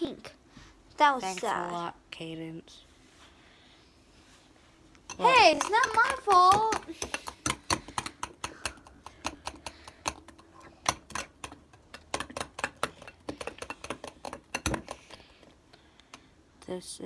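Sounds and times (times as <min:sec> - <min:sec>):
quick irregular clicks and taps: 0:05.0 - 0:16.3.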